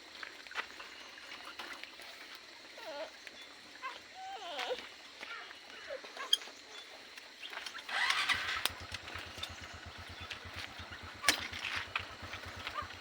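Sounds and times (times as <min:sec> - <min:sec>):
small engine starting and idling: 0:07.7 - 0:13.0
sharp clicks: 0:07.9 - 0:12.8.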